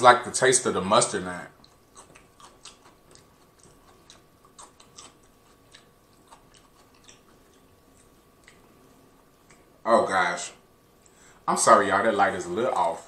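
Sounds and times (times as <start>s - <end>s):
person chewing food: 1.5s - 9.8s.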